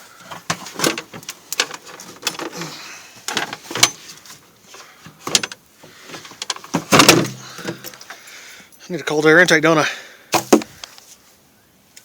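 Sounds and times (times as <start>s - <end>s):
engine parts clicking and knocking: 0.2s - 8.3s.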